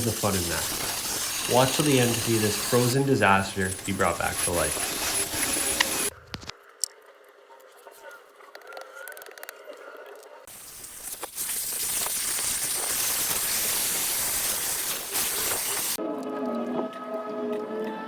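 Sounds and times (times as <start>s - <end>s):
soldering torch hissing: 0.0s - 6.2s, 10.5s - 16.0s.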